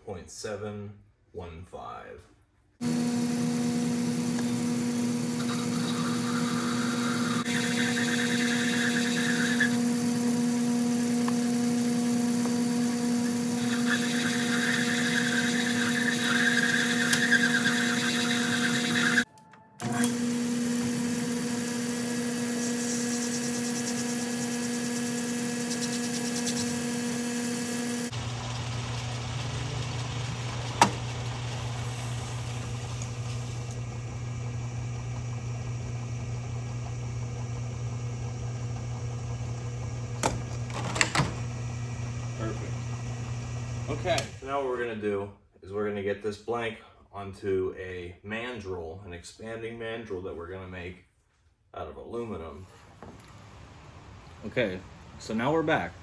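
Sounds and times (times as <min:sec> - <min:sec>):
rasping metal cutting: 0:02.8 - 0:30.9
lathe motor humming: 0:02.8 - 0:44.4.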